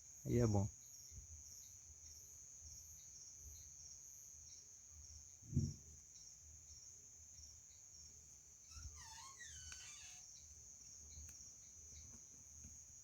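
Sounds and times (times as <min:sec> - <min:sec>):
crickets chirping: 0:00.0 - 0:13.0
low thump: 0:05.5 - 0:05.8.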